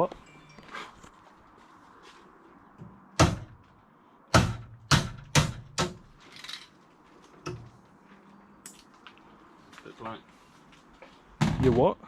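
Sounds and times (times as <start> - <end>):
sharp loud knocks: 3.2 - 3.6, 4.3 - 6.0.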